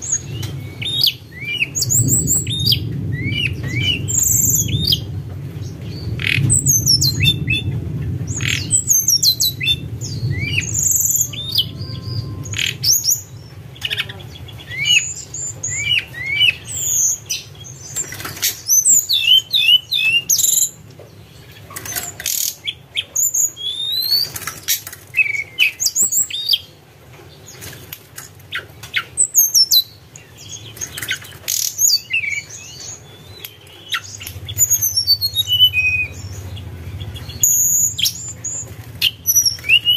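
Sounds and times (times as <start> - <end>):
songbird whistling and chirping: 0.0 - 5.1, 5.8 - 20.8, 21.7 - 26.7, 28.5 - 39.9
low rumble: 0.0 - 17.9, 34.1 - 39.9.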